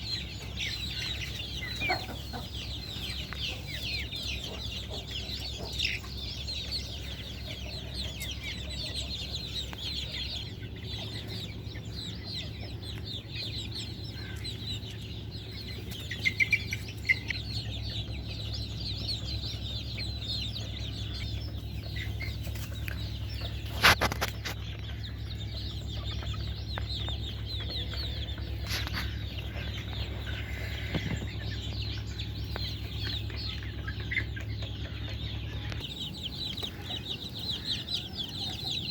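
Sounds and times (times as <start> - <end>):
chickens clucking: 0.0 - 38.9
steady low hum: 0.0 - 38.9.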